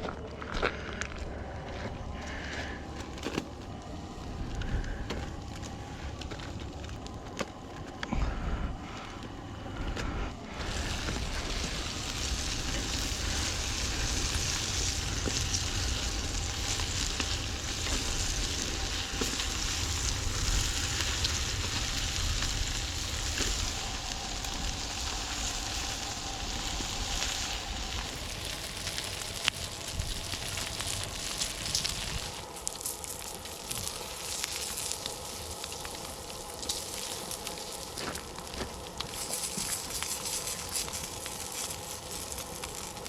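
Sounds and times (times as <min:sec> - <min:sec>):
campfire crackling: 0:00.0 - 0:43.0
meat sizzling on a grill: 0:10.5 - 0:43.0.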